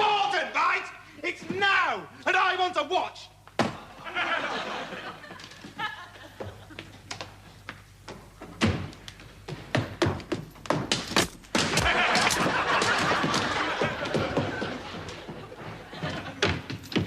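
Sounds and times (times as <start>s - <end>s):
household items being smashed: 11.0s - 13.4s.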